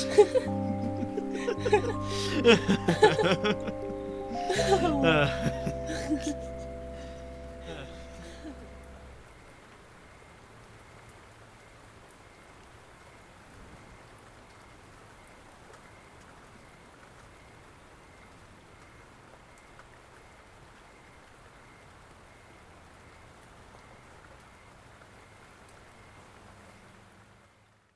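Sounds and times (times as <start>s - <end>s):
faint pulsing high tone: 0.0s - 9.2s
steady rain falling: 0.0s - 27.9s.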